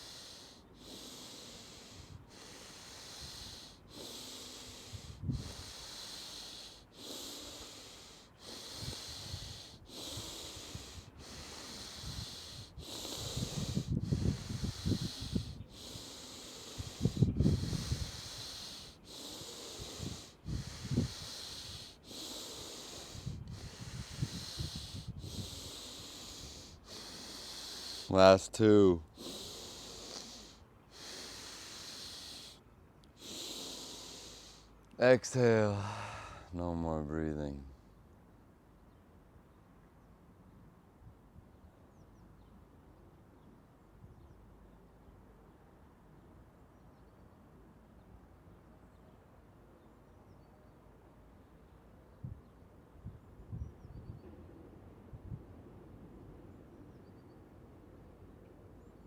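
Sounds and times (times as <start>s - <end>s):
forceful breathing: 0.0s - 36.6s.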